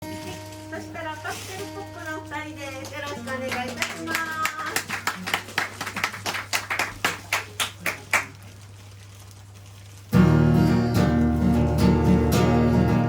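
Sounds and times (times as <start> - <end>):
strummed guitar: 0.0 - 4.1, 10.1 - 13.0
rhythmic hand claps: 2.8 - 8.4.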